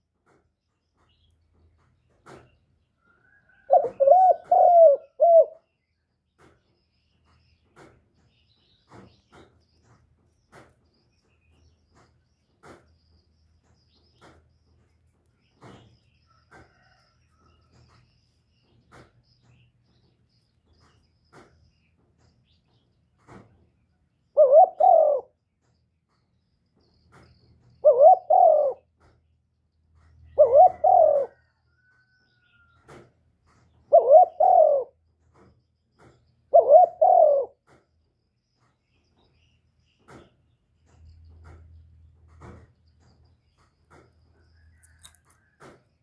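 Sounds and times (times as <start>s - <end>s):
dove cooing: 3.6s - 5.7s, 24.3s - 25.4s, 27.8s - 28.9s, 30.2s - 31.6s, 33.8s - 35.0s, 36.5s - 37.6s.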